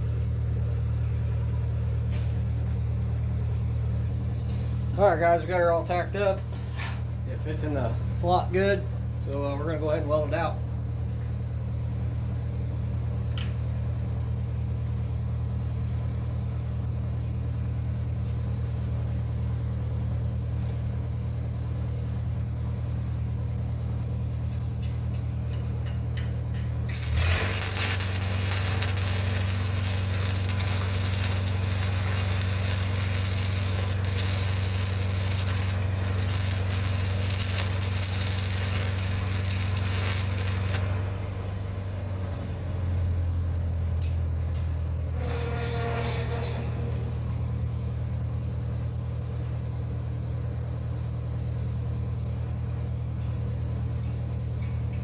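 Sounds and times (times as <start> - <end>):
welding machine humming: 0.0 - 49.5
welding arc crackling and sizzling: 13.7 - 21.7, 24.1 - 42.3, 43.8 - 48.5.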